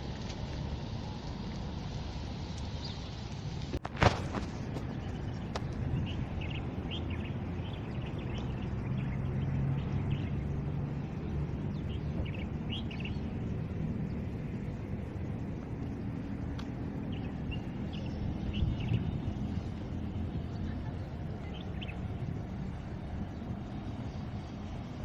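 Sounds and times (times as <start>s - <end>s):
low rumble of distant traffic: 0.0s - 25.0s
small birds chirping: 2.4s - 3.4s, 4.6s - 14.7s, 15.3s - 25.0s.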